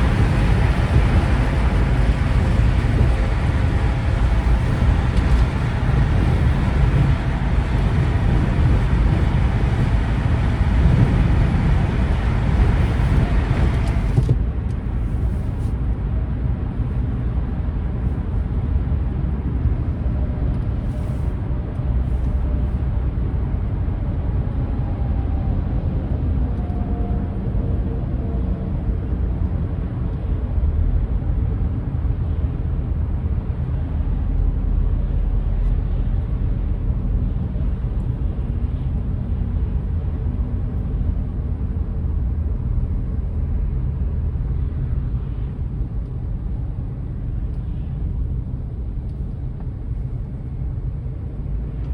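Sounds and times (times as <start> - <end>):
road noise hiss: 0.0 - 16.9, 20.7 - 23.7
vehicle engine rumble: 0.0 - 51.9.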